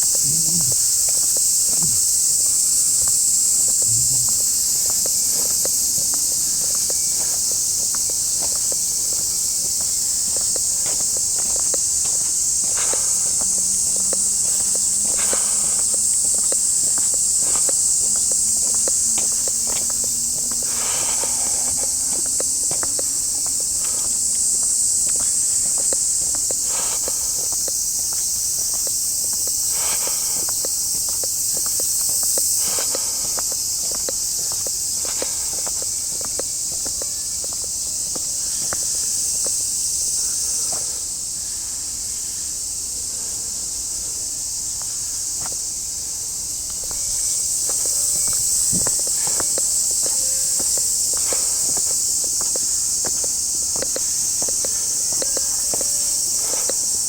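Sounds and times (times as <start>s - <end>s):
footsteps on a path: 0.0s - 41.6s, 44.4s - 57.0s
cicadas buzzing: 0.0s - 57.0s.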